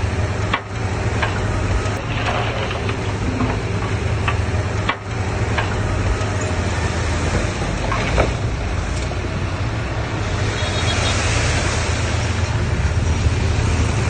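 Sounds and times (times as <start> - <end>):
diesel engine low rumble: 0.0 - 14.0
knocks and clanks: 0.4 - 9.3.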